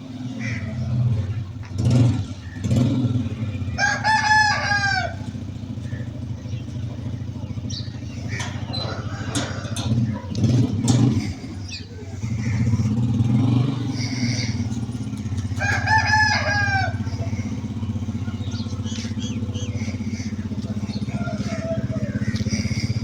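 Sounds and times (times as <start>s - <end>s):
low engine rumble: 0.0s - 23.0s
rooster crowing: 3.7s - 5.6s, 8.2s - 10.3s, 14.2s - 23.0s
knocks and clatter: 8.3s - 11.4s.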